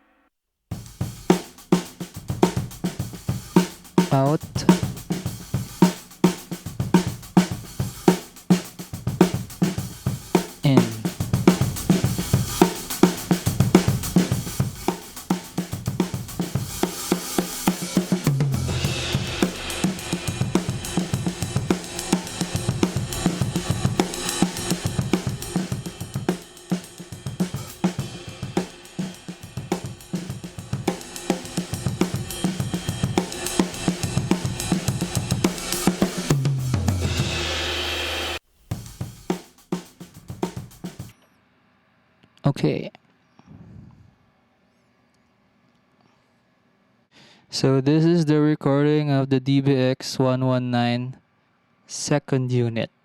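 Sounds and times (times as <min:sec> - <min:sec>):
drum kit groove: 0:00.7 - 0:41.2.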